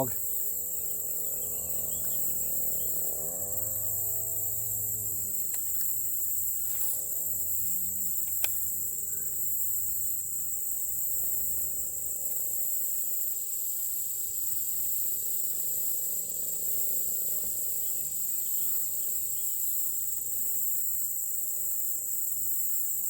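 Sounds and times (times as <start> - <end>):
insects chirping: 0.0 - 23.0
low humming tone bending in pitch: 0.6 - 9.2
sharp click: 8.2 - 8.6.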